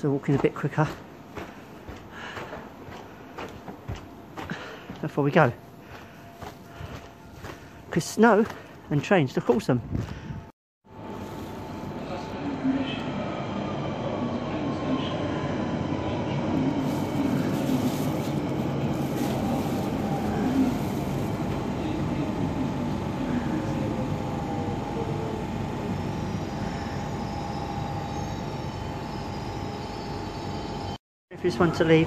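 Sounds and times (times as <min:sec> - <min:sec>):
electric train whine: 0:10.2 - 0:32.0.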